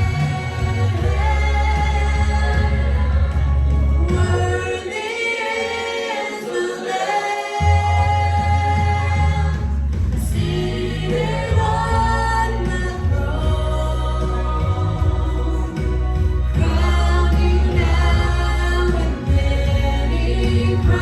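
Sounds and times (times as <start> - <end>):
band with strong bass: 0.0 - 4.9, 7.6 - 21.0
voices singing held notes: 0.0 - 21.0.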